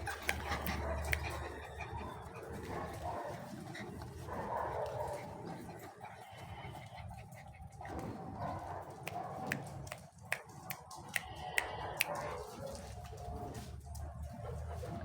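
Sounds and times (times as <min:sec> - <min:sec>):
puppies squeaking and yipping: 0:00.0 - 0:03.2.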